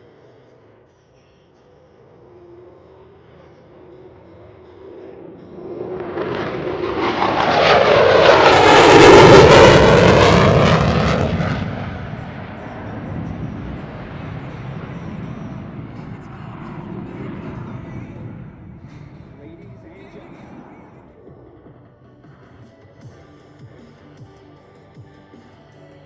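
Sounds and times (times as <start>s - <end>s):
distant jet rumble: 1.6s - 22.9s
jet passing overhead: 1.8s - 21.8s.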